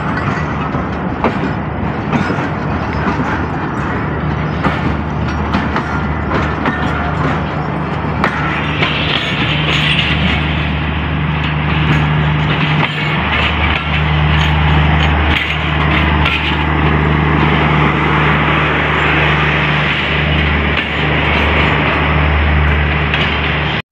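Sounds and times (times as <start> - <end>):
train engine hum: 0.0 - 23.8
wheel and rail noise: 0.0 - 23.8.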